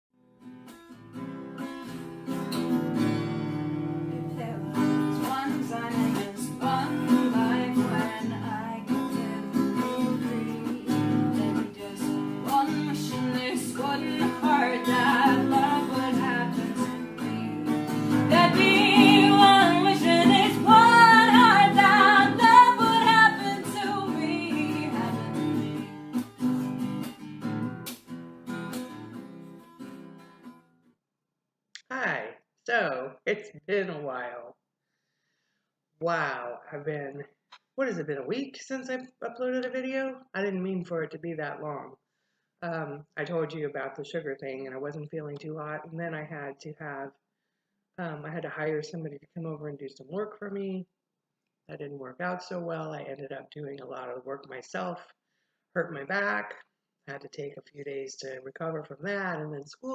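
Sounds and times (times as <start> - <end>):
strummed acoustic guitar: 0.4 - 30.6
person singing: 4.1 - 17.6, 18.2 - 25.7.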